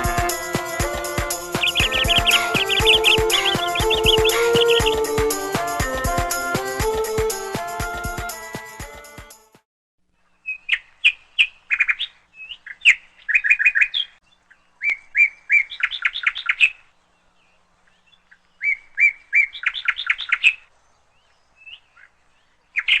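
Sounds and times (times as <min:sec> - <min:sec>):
bird chirping and trilling: 0:00.0 - 0:05.2, 0:10.2 - 0:23.0.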